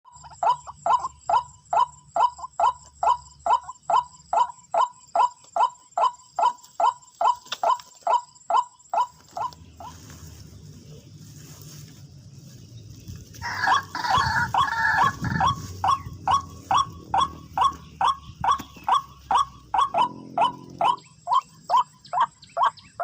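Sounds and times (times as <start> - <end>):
waterhen calling wak notes: 13.4 - 23.0.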